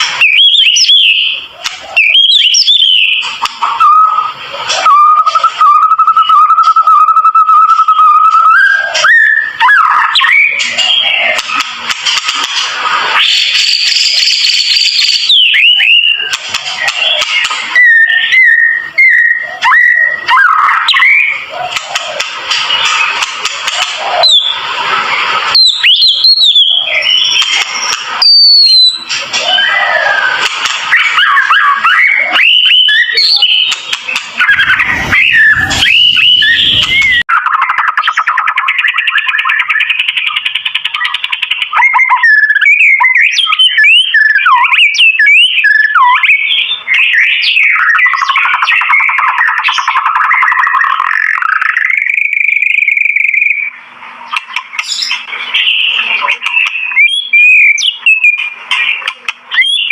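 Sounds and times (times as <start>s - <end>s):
background bird chatter: 0.0s - 12.6s, 13.2s - 59.9s
bird singing whistled notes: 0.1s - 1.4s, 2.0s - 11.3s, 17.0s - 21.4s, 34.4s - 37.2s, 54.9s - 58.6s, 59.5s - 59.9s.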